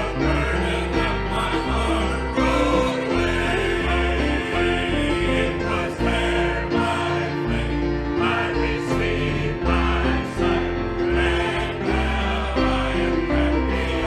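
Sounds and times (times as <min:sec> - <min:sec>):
gospel singing with accompaniment: 0:00.0 - 0:14.0
steady bass line: 0:00.0 - 0:14.0.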